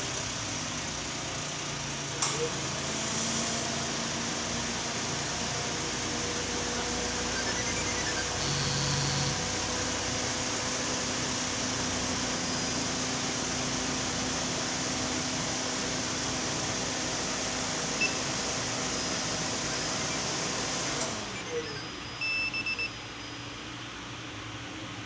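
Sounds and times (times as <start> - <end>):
engine shutting off: 0.0 - 21.8
short electronic beeps: 6.4 - 9.7, 18.0 - 18.3, 21.3 - 23.6.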